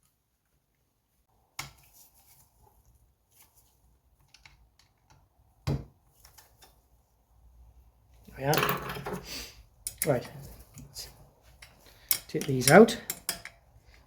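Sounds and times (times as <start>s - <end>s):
hand tools clicking and tapping: 9.8s - 10.9s, 11.6s - 13.6s.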